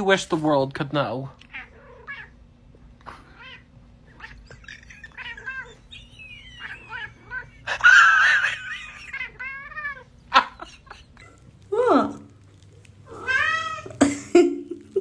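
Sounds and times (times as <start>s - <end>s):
cat meowing: 1.4s - 2.4s, 3.3s - 10.2s, 13.0s - 14.0s
cat yowling: 1.5s - 2.4s, 3.3s - 10.6s, 13.0s - 14.0s.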